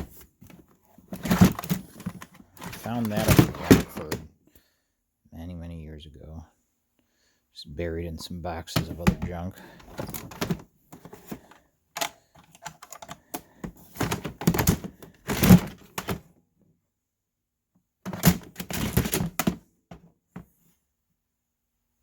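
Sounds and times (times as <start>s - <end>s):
plastic toys clattering: 0.4s - 4.2s, 8.8s - 16.2s, 18.1s - 19.6s.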